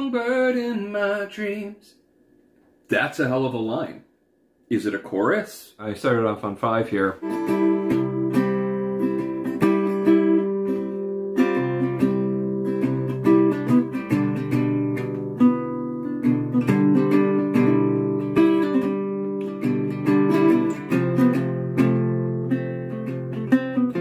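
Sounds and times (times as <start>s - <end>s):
acoustic guitar picking chords: 7.2s - 24.0s.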